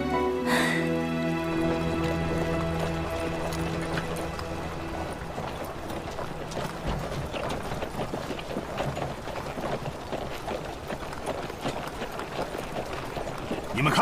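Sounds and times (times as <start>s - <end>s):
background music: 0.0s - 9.3s
horse hooves clip-clopping: 0.9s - 14.0s.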